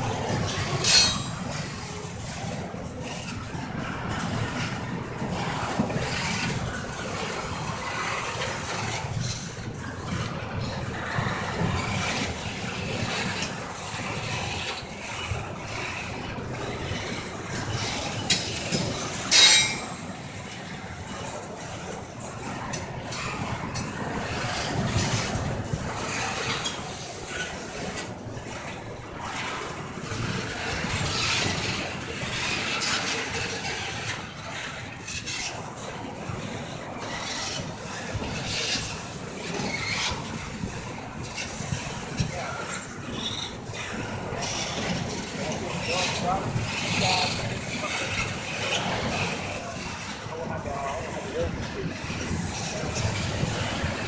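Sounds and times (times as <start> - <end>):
train wheels rumbling on rails: 0.0 - 54.0
sharp high sounds: 0.8 - 1.5.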